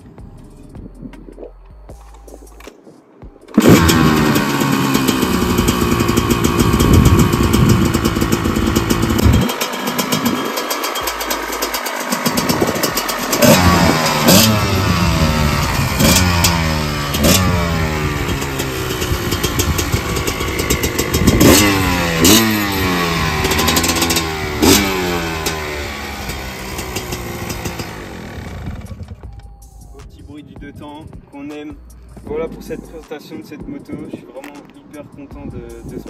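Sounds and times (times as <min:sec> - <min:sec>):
two-stroke engine revving: 0:03.5 - 0:29.2.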